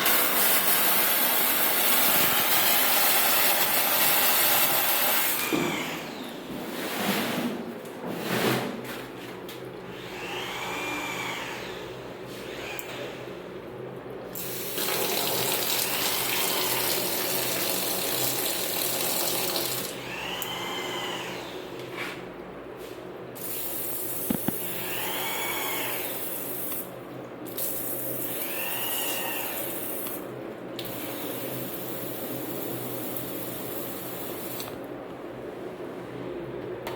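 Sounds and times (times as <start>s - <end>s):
water rushing from a tap: 0.0s - 5.5s, 14.4s - 19.9s, 30.8s - 34.8s.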